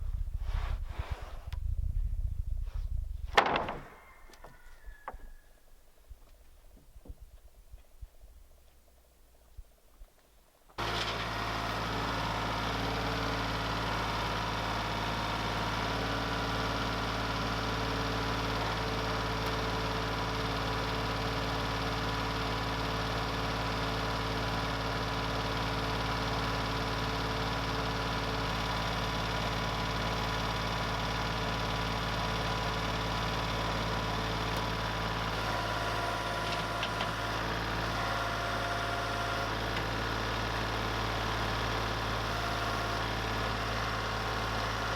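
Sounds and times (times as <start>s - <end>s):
lumber mill engine running: 10.8s - 44.9s.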